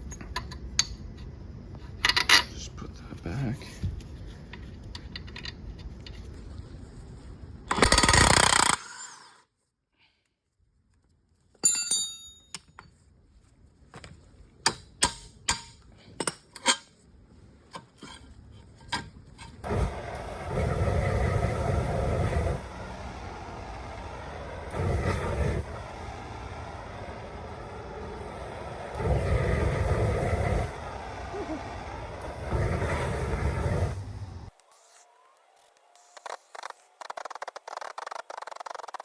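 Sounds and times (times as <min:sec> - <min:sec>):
power tool burst: 0:07.7 - 0:09.3, 0:19.6 - 0:39.0
metallic clanks: 0:11.6 - 0:12.9
clicks and knocks of metal parts: 0:14.0 - 0:17.0
steady rushing noise: 0:19.6 - 0:34.9.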